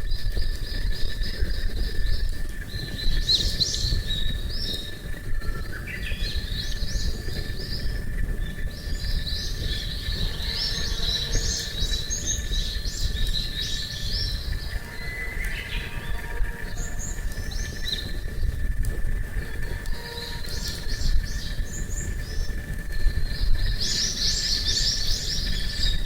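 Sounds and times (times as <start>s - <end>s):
low rumbling background: 0.0s - 26.0s
songbirds chirping: 0.0s - 26.0s.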